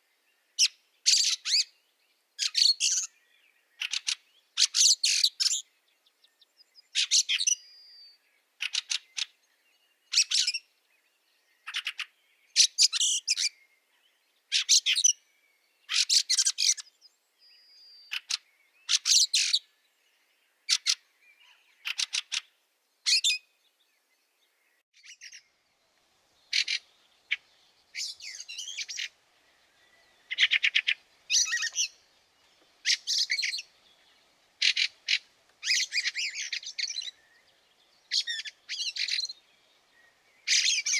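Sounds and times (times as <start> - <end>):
bird harsh chattering calls: 26.4 - 39.5, 40.1 - 40.9.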